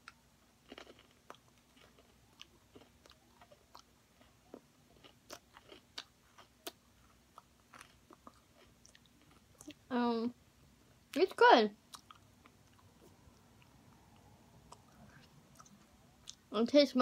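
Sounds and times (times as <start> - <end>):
person chewing crunchy snack: 0.0 - 9.8, 11.9 - 13.7.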